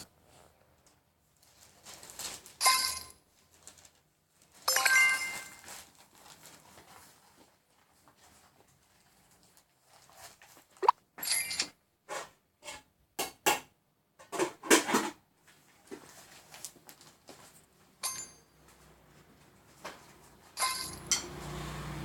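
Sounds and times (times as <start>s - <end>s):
ringing clink: 20.6s - 21.3s.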